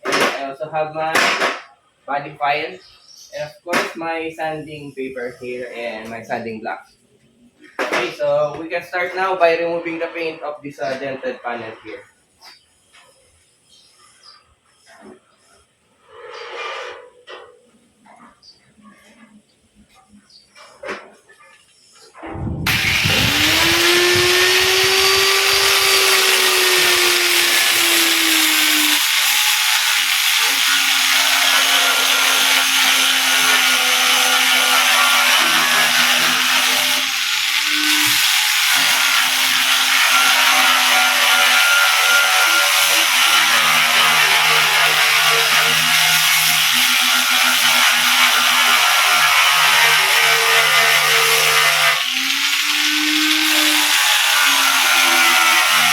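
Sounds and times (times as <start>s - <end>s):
grinder motor: 22.7s - 55.9s
grinding disc hissing on metal: 22.7s - 55.9s.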